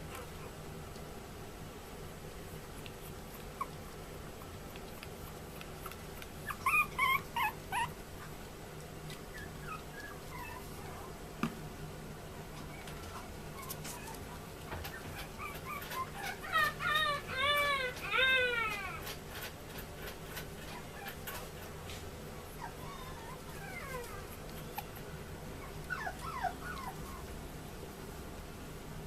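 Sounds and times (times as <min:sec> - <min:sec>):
puppy whimpering: 0:00.0 - 0:00.6, 0:02.8 - 0:08.4, 0:09.1 - 0:11.2, 0:12.6 - 0:21.7, 0:22.4 - 0:27.4.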